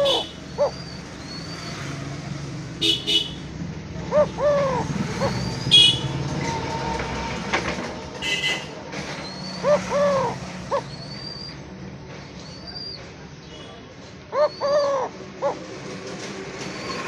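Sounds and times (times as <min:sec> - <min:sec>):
dove cooing: 0:00.0 - 0:02.0, 0:03.9 - 0:06.5, 0:09.2 - 0:11.6, 0:14.3 - 0:17.0
small birds chirping: 0:00.0 - 0:02.7, 0:03.4 - 0:06.5, 0:09.0 - 0:15.8.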